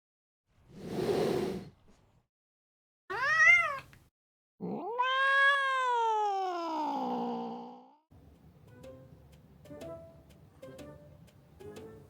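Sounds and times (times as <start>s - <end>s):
cat meowing: 3.1s - 4.0s, 4.6s - 7.2s.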